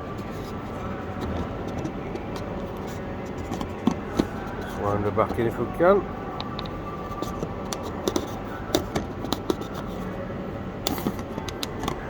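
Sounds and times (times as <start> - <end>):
plastic housing clicks and scrapes: 1.2 - 5.4, 6.4 - 10.1, 10.9 - 12.0.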